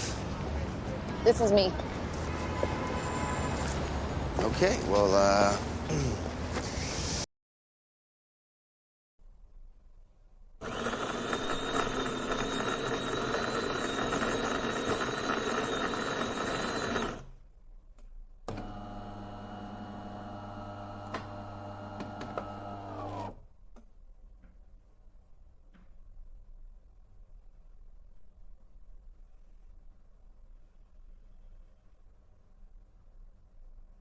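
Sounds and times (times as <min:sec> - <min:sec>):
appliance motor whirring: 0:10.6 - 0:17.2, 0:18.5 - 0:23.4.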